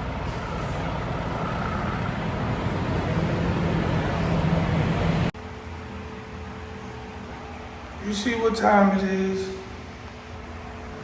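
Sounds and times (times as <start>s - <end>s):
diesel truck engine rumbling: 0.0s - 5.4s.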